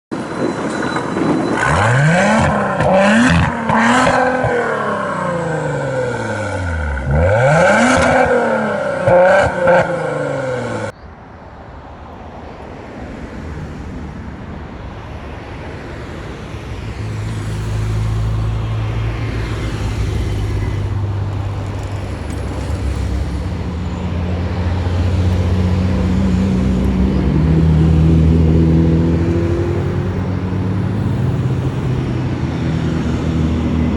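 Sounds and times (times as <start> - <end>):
car engines revving hard: 1.6 - 11.0, 16.7 - 33.9.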